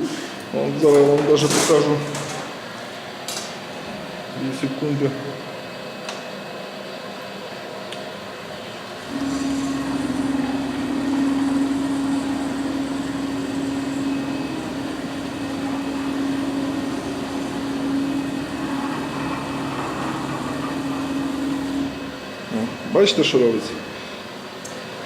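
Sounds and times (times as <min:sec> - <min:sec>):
stepper motors whining: 0:09.0 - 0:23.1.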